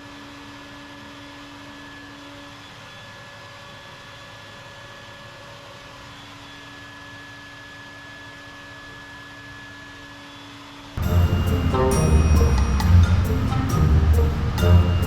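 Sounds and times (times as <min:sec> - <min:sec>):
machine hum with whine: 0:00.0 - 0:15.0
loud music: 0:11.0 - 0:15.0.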